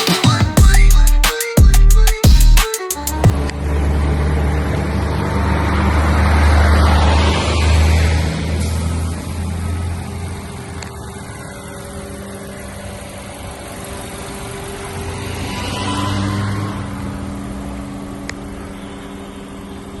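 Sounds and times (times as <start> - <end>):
car engine idling: 8.3 - 20.0.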